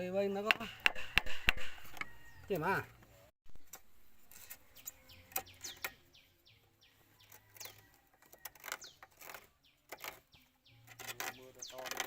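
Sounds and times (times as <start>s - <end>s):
small birds chirping: 0.3s - 12.0s
sharp knocks: 0.4s - 2.1s.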